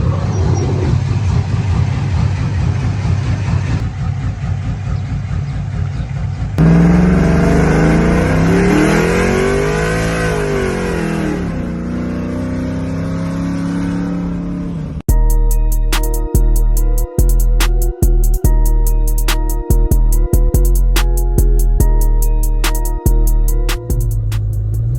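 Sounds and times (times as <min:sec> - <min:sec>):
engine idling with choppy lope: 0:00.0 - 0:08.6
engine revving: 0:00.0 - 0:15.1, 0:23.7 - 0:24.9.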